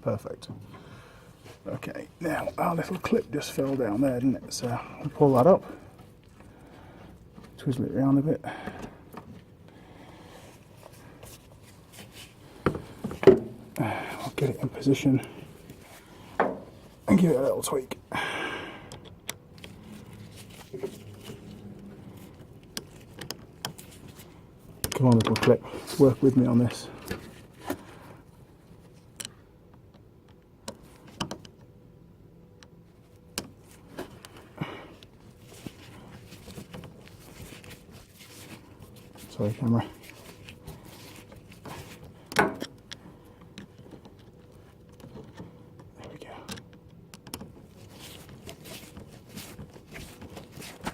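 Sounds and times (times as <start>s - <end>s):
small clicks and knocks of hands: 42.3s - 47.6s.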